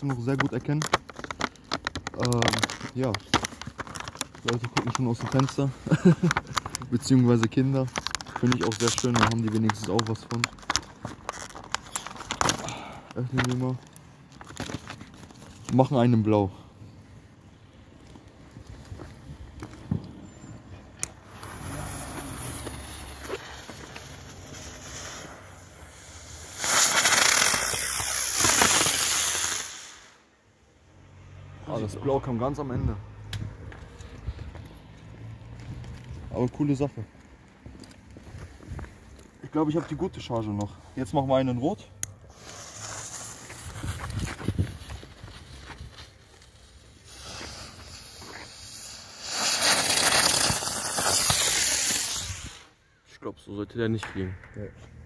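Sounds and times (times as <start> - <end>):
firework motor loud hiss: 21.0 - 30.3, 42.2 - 45.6, 46.3 - 52.8
firework fuse fizzing: 21.0 - 30.4, 42.2 - 52.8.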